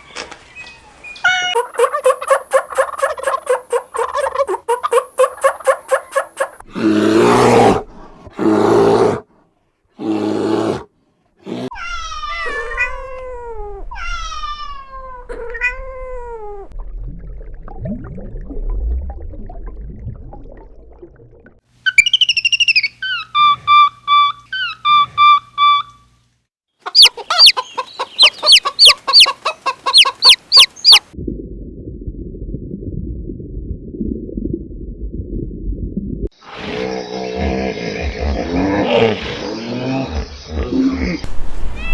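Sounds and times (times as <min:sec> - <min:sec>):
animal calls: 0:01.3 - 0:06.6, 0:21.9 - 0:25.9, 0:26.8 - 0:31.1.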